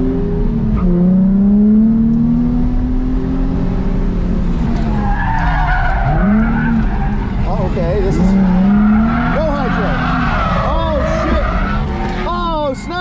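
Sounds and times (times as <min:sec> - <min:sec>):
car engine revving: 0:00.0 - 0:13.0
tyres squealing: 0:04.8 - 0:13.0.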